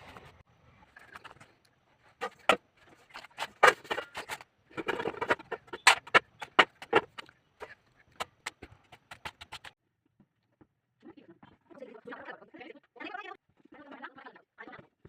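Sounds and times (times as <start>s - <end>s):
kitchen utensils clicking and knocking: 2.2s - 9.8s.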